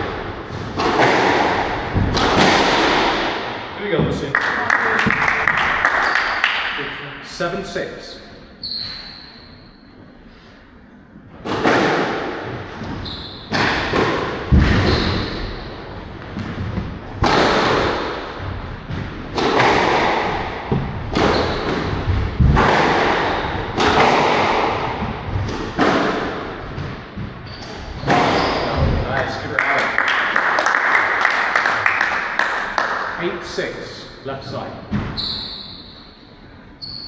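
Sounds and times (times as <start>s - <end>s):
squash ball hitting rackets and walls: 0.0s - 6.7s, 11.2s - 33.2s, 34.9s - 35.8s.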